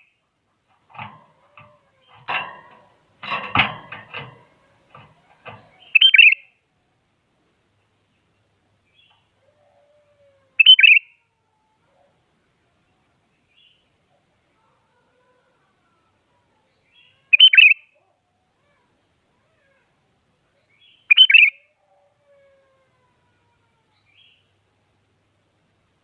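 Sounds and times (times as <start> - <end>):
rough noisy sounds: 0.7 - 6.0
bulbul calling: 5.6 - 6.5, 10.6 - 11.0, 17.3 - 17.8, 21.1 - 21.6.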